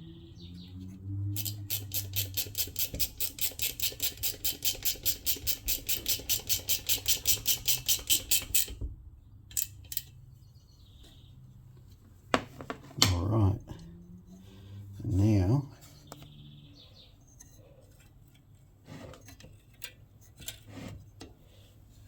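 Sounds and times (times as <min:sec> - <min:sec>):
ratchet wrench clicking: 0:01.3 - 0:08.8, 0:09.5 - 0:10.1.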